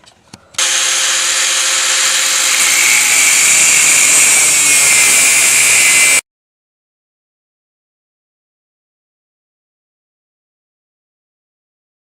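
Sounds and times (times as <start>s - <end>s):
angle grinder cutting metal: 0.6s - 6.2s.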